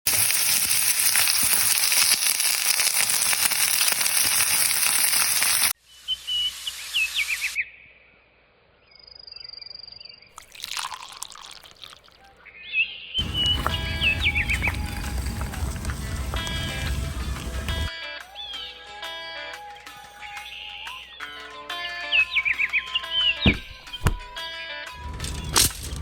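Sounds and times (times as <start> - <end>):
steak sizzling on griddle: 0.1 - 5.7, 13.2 - 17.9
whistled chirps: 5.9 - 7.8, 12.6 - 15.1.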